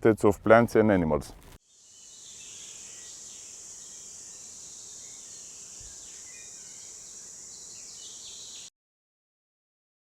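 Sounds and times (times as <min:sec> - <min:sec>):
high-pitched insect chorus: 0:01.6 - 0:08.7.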